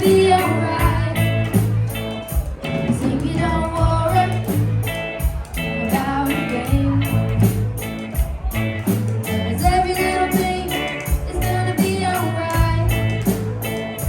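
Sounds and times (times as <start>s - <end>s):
person singing: 0.0s - 1.5s, 5.8s - 7.5s, 9.3s - 13.6s
live reggae band playing: 0.0s - 14.0s.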